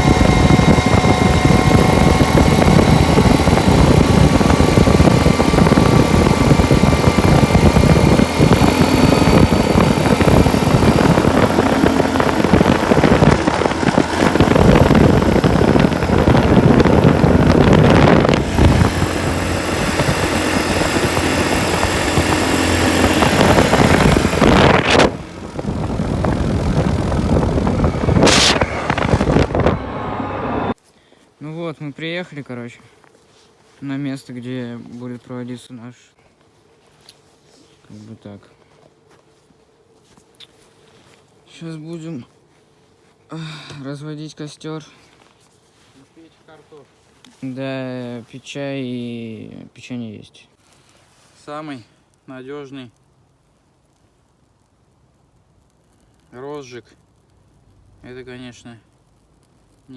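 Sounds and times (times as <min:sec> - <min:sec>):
off-road vehicle engine: 0:00.0 - 0:30.8.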